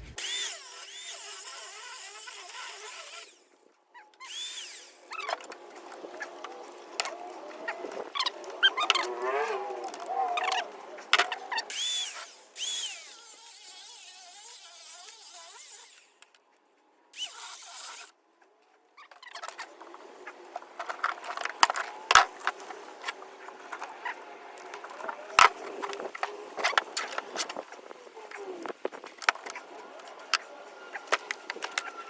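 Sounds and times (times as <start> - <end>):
power tool cutting metal: 0.2 - 3.6, 4.2 - 5.4, 11.7 - 16.2, 17.2 - 18.1.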